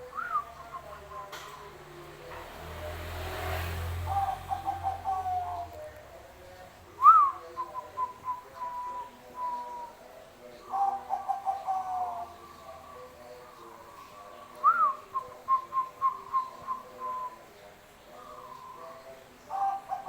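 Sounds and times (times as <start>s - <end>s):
dove cooing: 0.0s - 2.4s, 3.9s - 6.2s, 7.0s - 20.0s.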